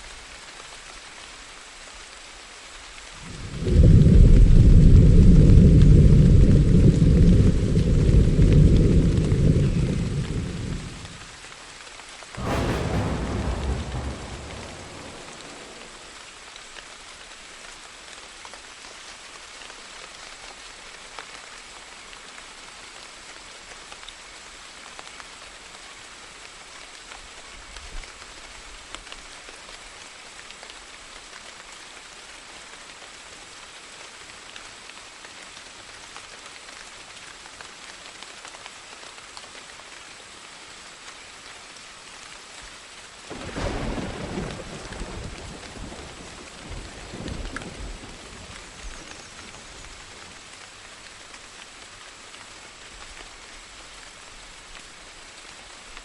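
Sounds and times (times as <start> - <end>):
rain falling: 0.0 - 56.0
thunder rumble: 3.2 - 11.2, 12.4 - 16.3, 43.3 - 50.4
sharp thunderclap: 12.4 - 16.3.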